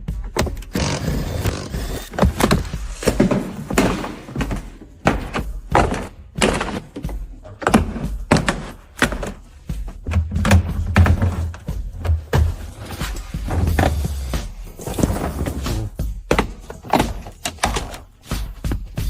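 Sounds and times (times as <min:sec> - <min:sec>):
knocks and thunks: 0:02.2 - 0:14.1.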